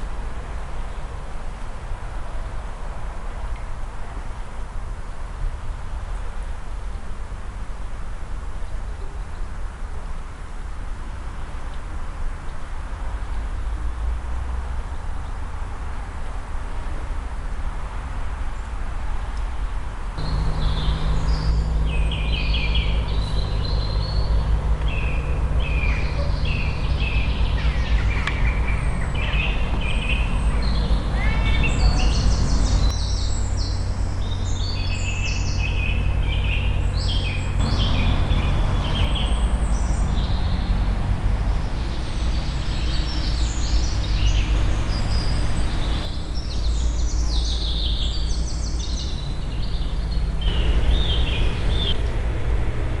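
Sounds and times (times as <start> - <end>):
songbirds singing: 18.5 - 52.0.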